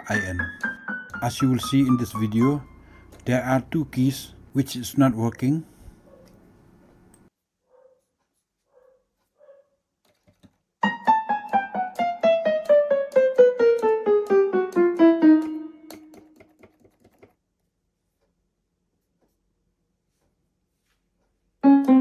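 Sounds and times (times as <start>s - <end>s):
electronic keyboard piano notes: 0.0s - 5.2s, 10.8s - 16.2s, 21.6s - 22.0s.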